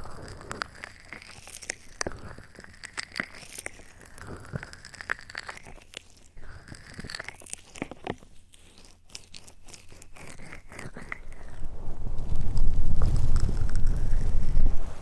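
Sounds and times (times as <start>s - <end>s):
soft clicks and crackles: 0.0s - 15.0s
low rushing noise: 11.6s - 15.0s.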